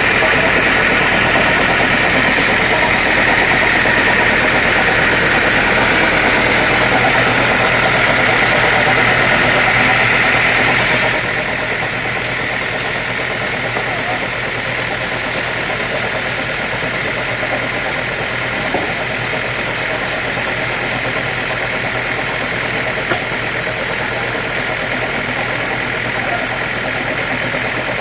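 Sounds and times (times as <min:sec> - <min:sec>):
sawmill machinery running: 0:00.0 - 0:28.0.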